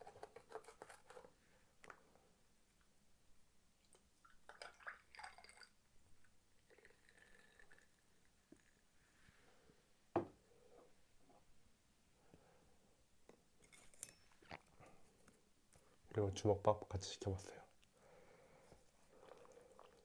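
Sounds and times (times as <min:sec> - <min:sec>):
wet eating sounds: 0:19.0 - 0:20.0.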